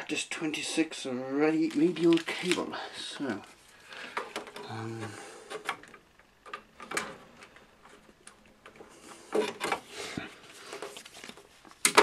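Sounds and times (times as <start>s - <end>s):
person humming: 4.6s - 5.4s.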